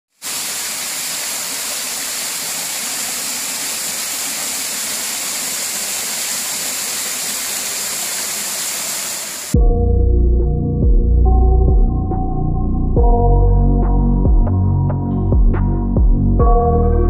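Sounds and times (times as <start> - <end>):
waterfall rushing in a cave: 0.1 - 9.6.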